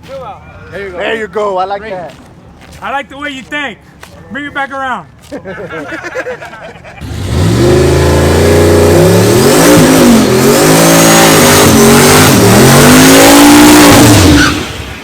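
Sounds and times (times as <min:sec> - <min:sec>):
engine revving hard: 0:07.0 - 0:15.0.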